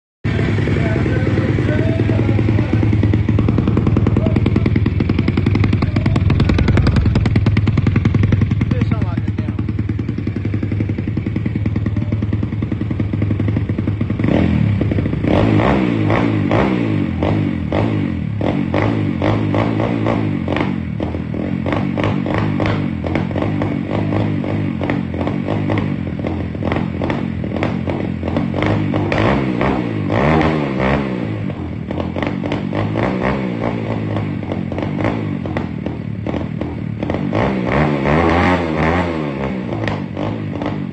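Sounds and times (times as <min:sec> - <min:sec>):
motorbike engine idling: 0:00.3 - 0:15.4
engine revving in throttle blips: 0:12.8 - 0:40.9.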